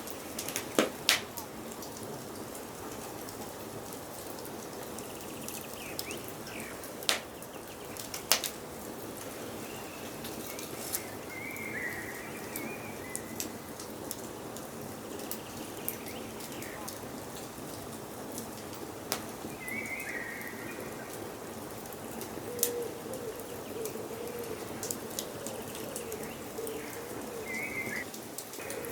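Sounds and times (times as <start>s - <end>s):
wood fire crackling: 0.0s - 28.9s
birds chirping and warbling: 4.8s - 17.1s, 19.4s - 28.9s.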